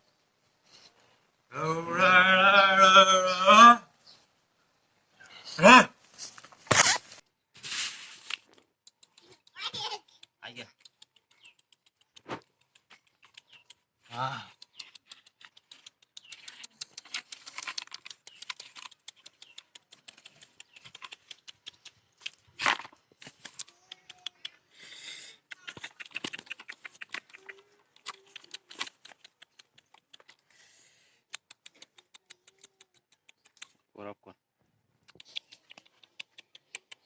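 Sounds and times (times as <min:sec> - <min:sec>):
tapping and scratching clicks: 0:08.7 - 0:13.9, 0:14.5 - 0:22.4.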